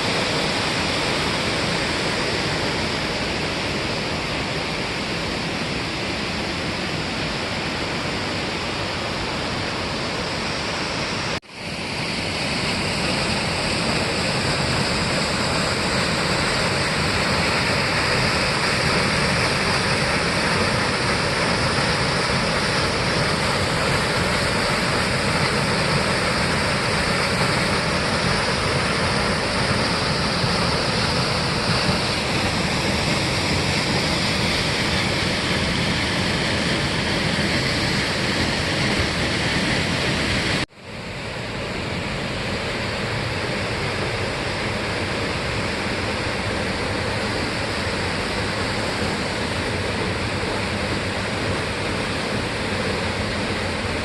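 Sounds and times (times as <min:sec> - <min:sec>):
waterfall roaring: 0:00.0 - 0:54.0.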